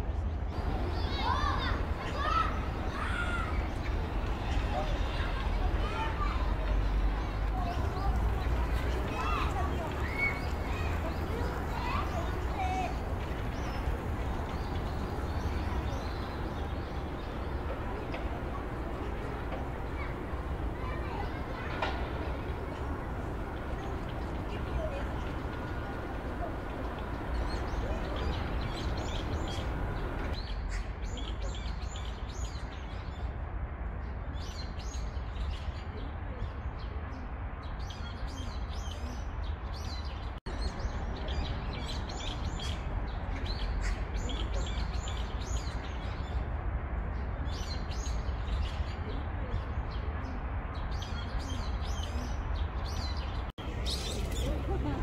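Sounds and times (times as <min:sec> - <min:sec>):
songbirds chirping: 0:00.3 - 0:33.3, 0:34.3 - 0:55.0
low background rumble: 0:07.0 - 0:30.4.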